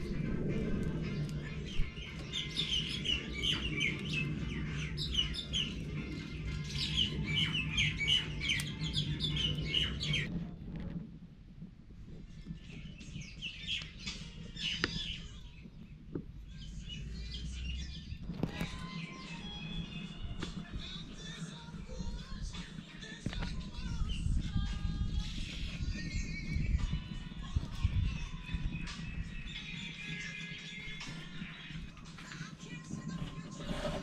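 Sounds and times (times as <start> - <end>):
low steady rumble: 0.0 - 2.4
birds chirping: 0.0 - 10.3, 12.2 - 34.0.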